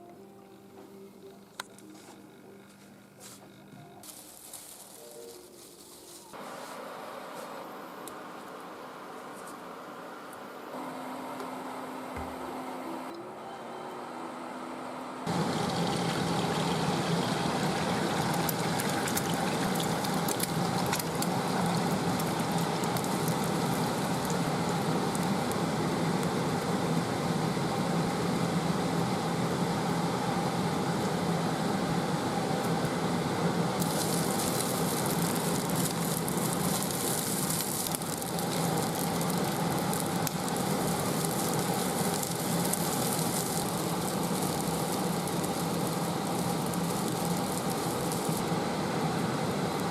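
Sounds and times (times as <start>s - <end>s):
food sizzling in a pan: 15.3s - 29.0s, 33.8s - 49.9s.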